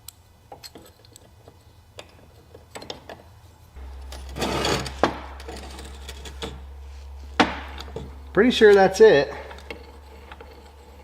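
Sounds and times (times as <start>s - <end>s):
metal rattle: 3.8s - 8.4s, 9.3s - 11.0s.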